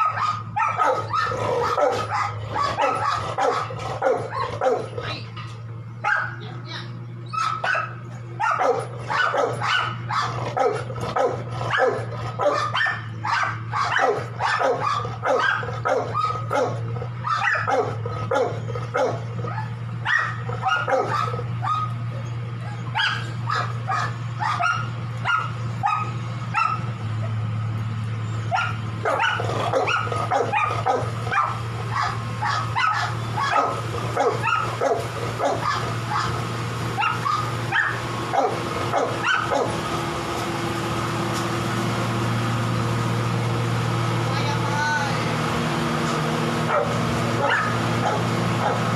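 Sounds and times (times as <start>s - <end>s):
dog barking: 0.0s - 5.2s, 6.0s - 6.4s, 7.3s - 22.0s, 22.7s - 27.4s, 28.5s - 36.4s, 37.0s - 39.8s, 46.7s - 48.9s.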